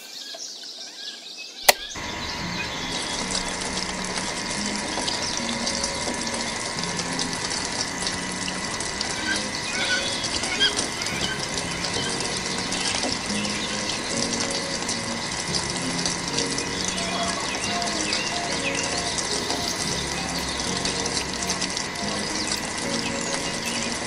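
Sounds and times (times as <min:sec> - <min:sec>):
sharp click: 0:01.7 - 0:02.0
pump motor whine: 0:01.7 - 0:24.0
water rushing from pump: 0:01.7 - 0:24.0.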